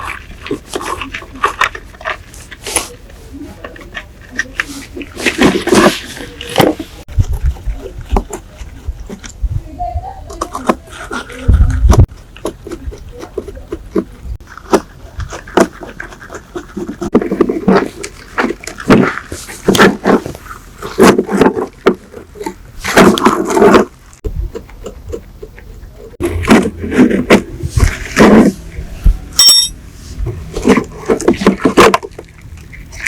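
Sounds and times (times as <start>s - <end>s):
scraping strokes: 26.1s - 33.0s.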